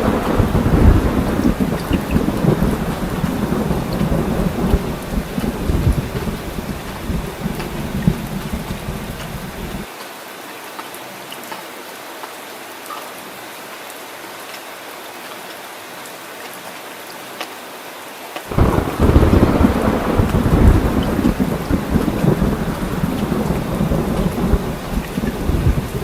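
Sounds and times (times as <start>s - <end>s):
deep rolling thunder: 0.0s - 9.8s, 18.5s - 26.0s
heavy rain falling: 0.0s - 26.0s.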